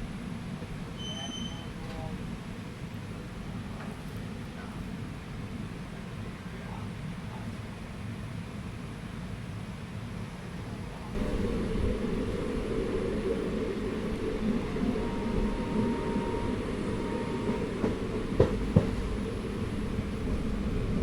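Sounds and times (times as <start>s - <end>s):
train rumbling along track: 0.0s - 21.0s
faint whine: 11.2s - 21.0s.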